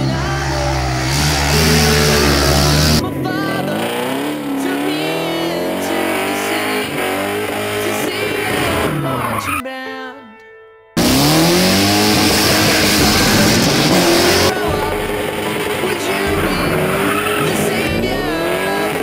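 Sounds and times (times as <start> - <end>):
car engine revving: 0.0 - 9.6, 11.0 - 19.0
loud rushing noise: 11.0 - 17.5.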